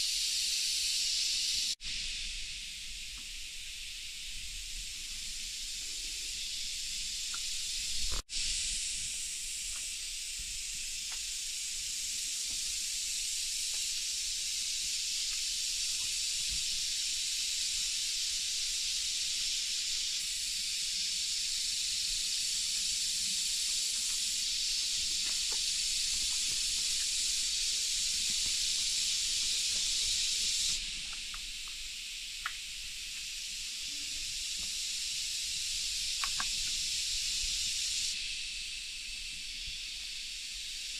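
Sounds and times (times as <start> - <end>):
hiss of rain: 0.0 - 40.9
faint ticks: 36.1 - 36.9.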